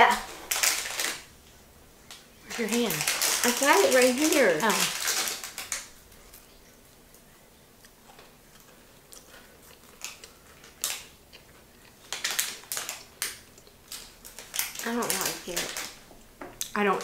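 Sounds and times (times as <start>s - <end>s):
biscuit crunching: 0.2s - 1.4s, 2.0s - 16.8s
quiet chewing: 5.1s - 16.8s.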